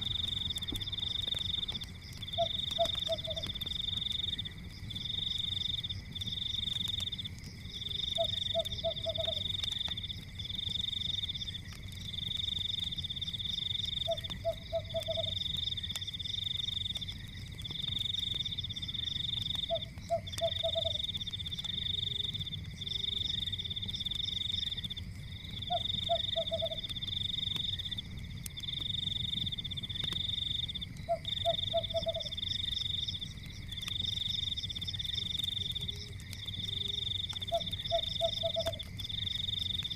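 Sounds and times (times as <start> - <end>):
fire crackling: 0.0 - 39.9
high insect trill: 0.0 - 39.9
frog croaking: 2.2 - 3.7, 8.1 - 9.6, 25.6 - 27.0, 31.0 - 32.4, 35.1 - 38.9.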